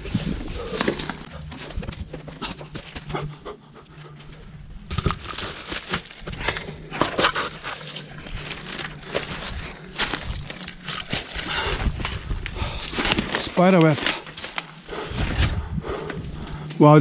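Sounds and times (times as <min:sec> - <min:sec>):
heavy breathing: 0:00.0 - 0:16.8
footsteps on dry leaves: 0:04.0 - 0:16.4.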